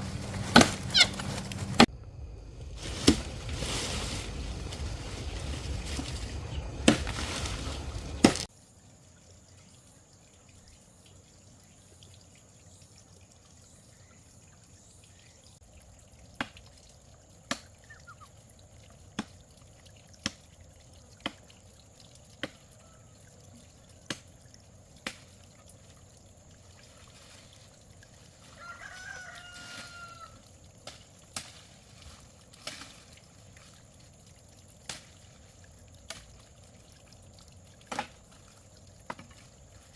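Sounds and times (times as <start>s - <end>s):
rooster crowing: 28.5s - 30.4s.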